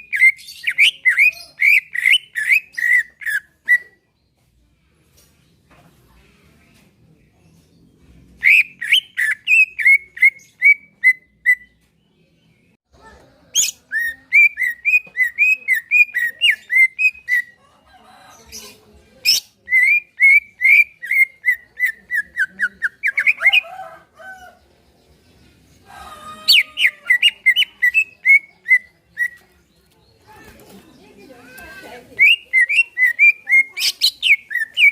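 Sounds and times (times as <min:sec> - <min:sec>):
bird singing whistled notes: 0:08.4 - 0:11.8, 0:32.2 - 0:34.9.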